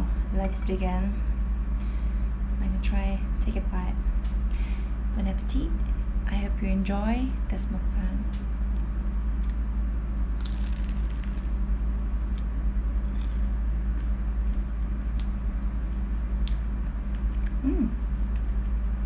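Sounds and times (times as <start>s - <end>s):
steady low hum: 0.0s - 19.0s
chewing crunchy food: 10.4s - 11.6s, 12.3s - 15.4s.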